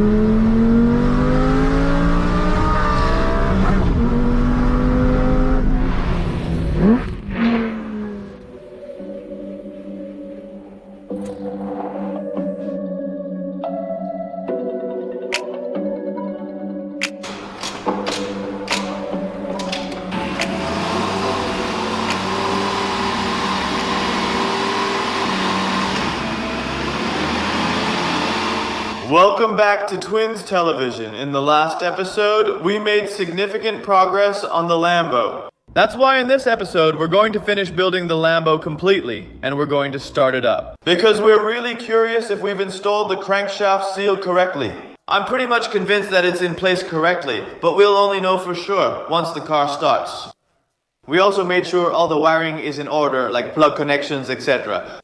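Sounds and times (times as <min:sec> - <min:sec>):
sports car engine revving: 0:00.0 - 0:08.6, 0:19.8 - 0:29.1
machine humming: 0:17.2 - 0:29.1.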